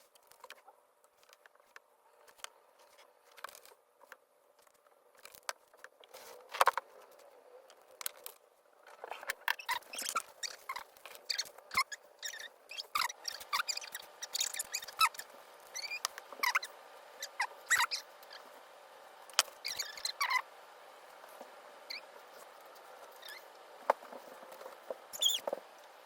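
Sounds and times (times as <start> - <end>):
painting tool squeaking on paper: 9.0 - 18.5, 19.5 - 20.5, 21.8 - 25.6.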